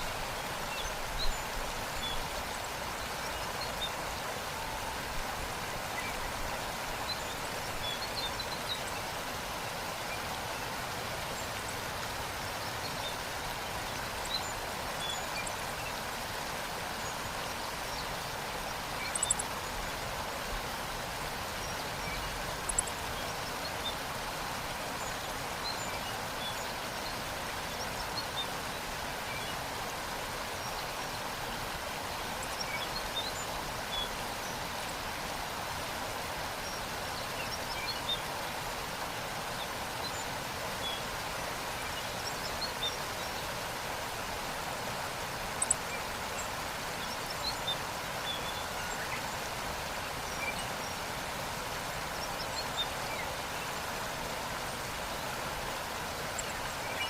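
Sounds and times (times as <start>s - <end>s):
waterfall rushing: 0.0s - 57.0s
small birds chirping: 16.8s - 35.2s, 36.6s - 57.0s.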